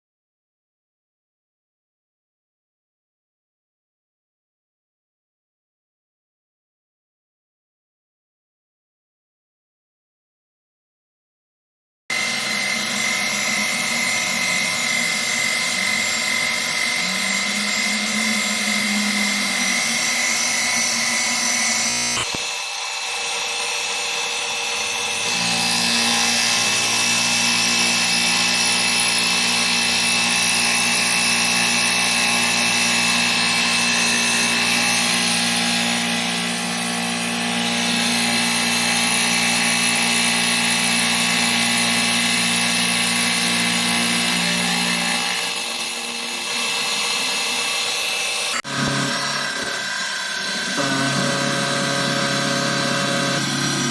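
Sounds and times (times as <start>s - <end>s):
milling machine whine: 12.1s - 53.9s.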